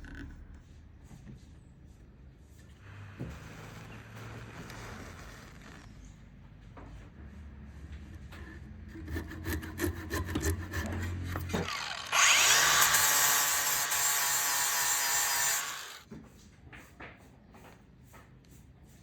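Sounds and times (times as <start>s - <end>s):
tool cutting wood: 8.9s - 16.1s.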